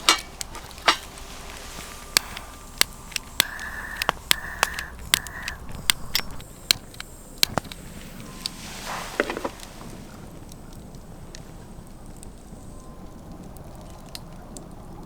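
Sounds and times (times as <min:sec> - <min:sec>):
short hissing sounds: 0:00.0 - 0:10.6
campfire crackling: 0:00.0 - 0:15.0.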